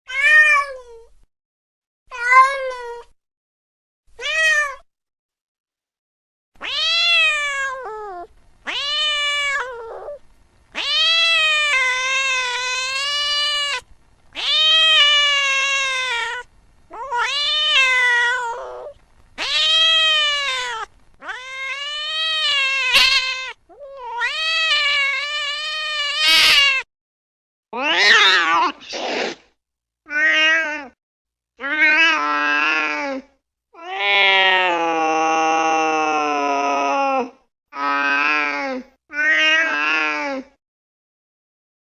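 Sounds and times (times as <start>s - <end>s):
cat meowing: 0.1s - 1.1s, 2.1s - 3.1s, 4.2s - 4.8s, 6.6s - 26.9s, 27.8s - 29.4s, 30.1s - 31.0s, 31.6s - 33.0s, 33.8s - 34.6s, 39.1s - 40.2s.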